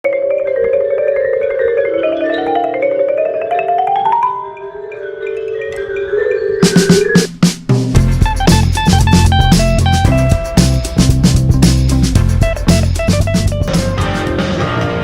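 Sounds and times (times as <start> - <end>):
marimba fast runs: 0.0 - 14.3
loud drum hits: 6.7 - 14.7.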